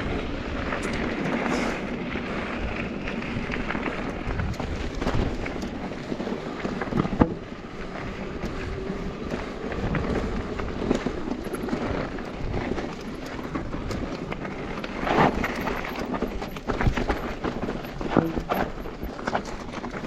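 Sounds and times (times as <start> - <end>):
bike heavy jolts: 0.0 - 20.0
wind and tyre noise: 0.0 - 20.0
bike rattling knocks: 15.0 - 20.0.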